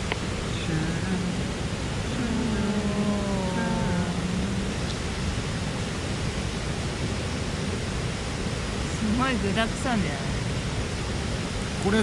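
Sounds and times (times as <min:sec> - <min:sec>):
mountain stream rushing: 0:00.0 - 0:12.0
person's voice: 0:00.5 - 0:04.9.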